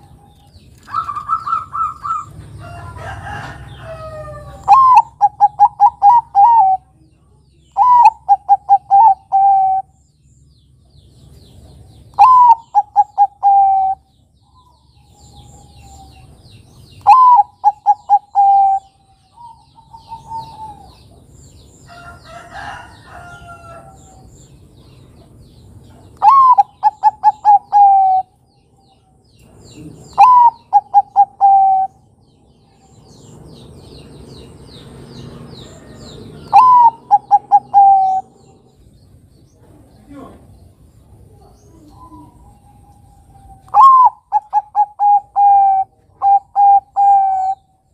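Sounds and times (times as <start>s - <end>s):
dove cooing: 0.0s - 7.0s, 7.8s - 10.0s, 12.2s - 14.1s, 17.0s - 21.2s, 26.2s - 28.4s, 29.7s - 32.1s, 35.7s - 38.8s, 41.2s - 47.8s.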